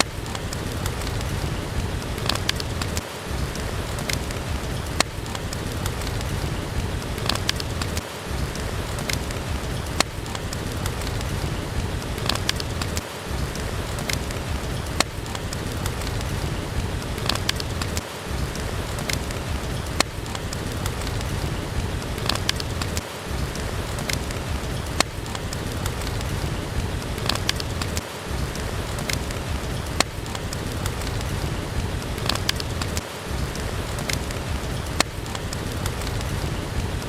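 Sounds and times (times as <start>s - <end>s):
steady rain: 0.0s - 37.0s
wood fire crackling: 0.0s - 37.0s.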